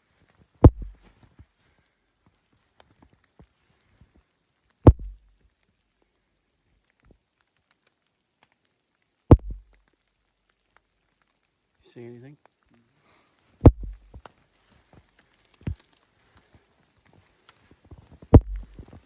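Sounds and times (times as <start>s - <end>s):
water drops striking microphone: 0.6s - 1.0s, 4.9s - 5.3s, 9.3s - 9.8s, 13.7s - 14.2s, 18.3s - 18.9s.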